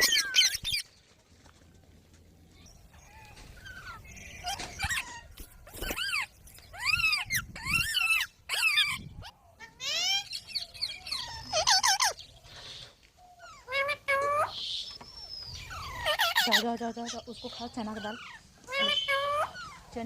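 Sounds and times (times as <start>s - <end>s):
parrot shrill calls: 0.0s - 0.8s, 3.6s - 12.2s, 13.4s - 16.7s.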